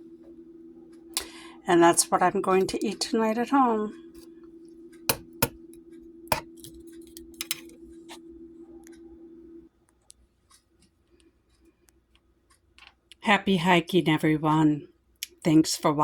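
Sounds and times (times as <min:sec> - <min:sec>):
steady low hum: 0:00.0 - 0:09.7
cookware clinking: 0:05.1 - 0:05.6.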